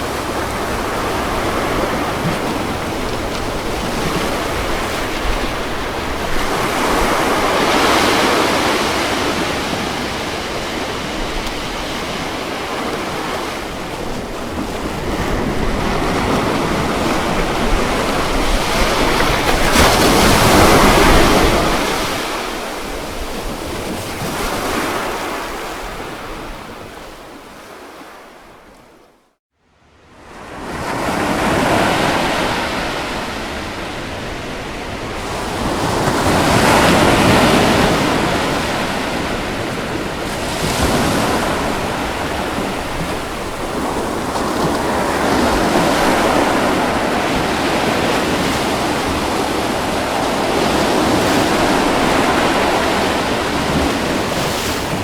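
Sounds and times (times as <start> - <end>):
waves breaking and washing in: 0.0 - 55.0.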